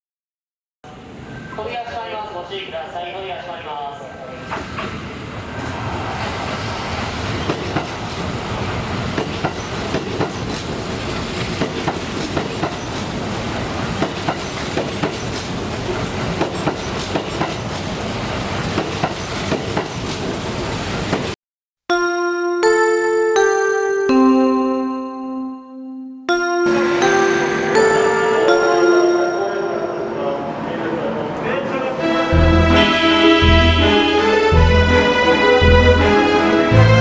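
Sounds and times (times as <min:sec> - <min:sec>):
train running on rails: 0:04.4 - 0:21.4, 0:26.6 - 0:36.9
wheels clacking over rail joints: 0:07.4 - 0:21.3.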